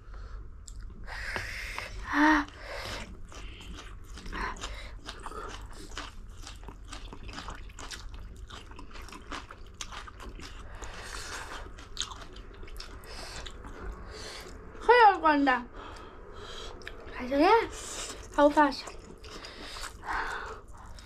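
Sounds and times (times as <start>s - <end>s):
wet mouth clicks and smacks: 0.6s - 0.9s
person chewing and biting: 3.0s - 14.6s, 18.1s - 21.0s.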